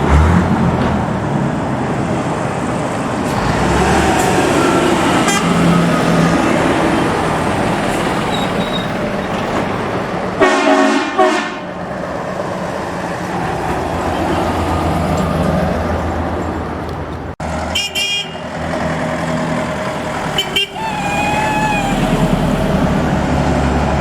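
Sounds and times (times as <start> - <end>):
trucks driving past: 0.0 - 24.0
truck horn blast: 4.6 - 6.6, 10.4 - 11.8, 17.6 - 18.7, 20.2 - 22.8
higher-pitched horn: 10.4 - 11.7.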